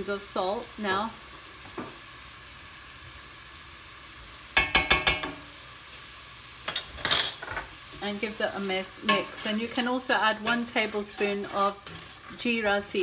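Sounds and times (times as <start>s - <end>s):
onions sizzling in a pot: 0.0s - 13.0s
wooden spoon knocking on pot: 4.6s - 5.4s.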